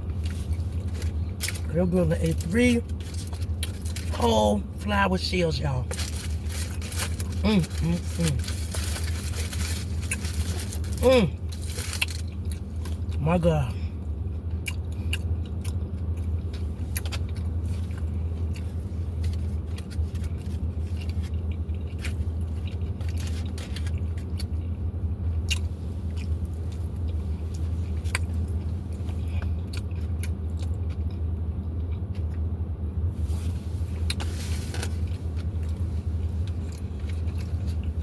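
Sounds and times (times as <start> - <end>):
steady low hum: 0.0 - 38.0
close-up chewing: 14.5 - 24.8, 25.4 - 32.4, 34.9 - 38.0.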